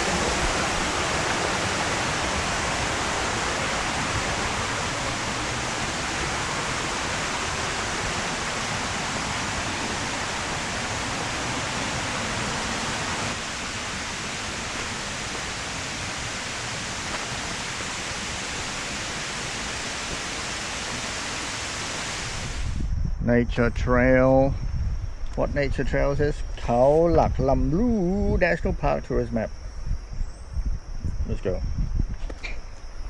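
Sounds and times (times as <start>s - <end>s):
waterfall rushing: 0.0s - 22.8s.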